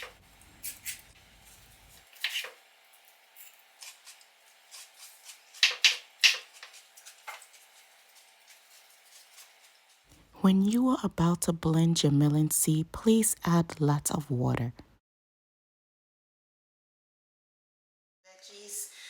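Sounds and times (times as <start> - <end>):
knife cutting on cutting board: 3.8 - 7.6.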